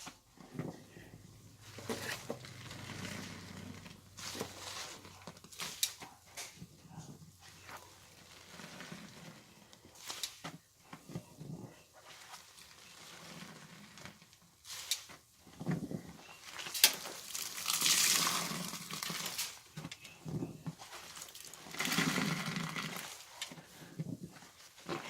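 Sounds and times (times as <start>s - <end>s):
wet laundry squelching: 11.9s - 25.0s.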